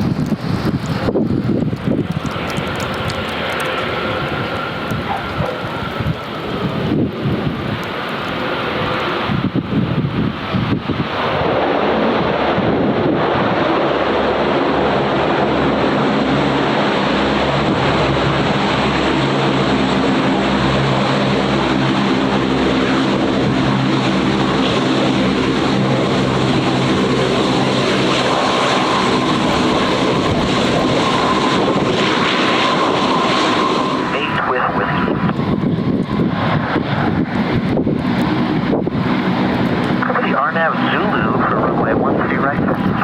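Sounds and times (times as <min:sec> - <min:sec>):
airplane engines running: 0:00.0 - 0:43.0
high steady whine: 0:27.2 - 0:35.6, 0:38.8 - 0:43.0.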